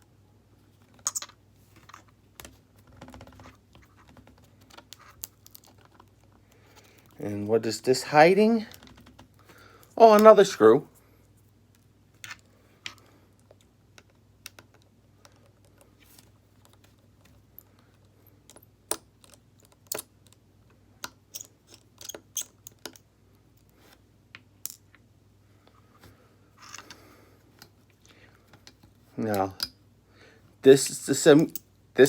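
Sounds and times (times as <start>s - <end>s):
screwdriver and small parts clicking: 18.4s - 20.4s, 21.0s - 23.0s.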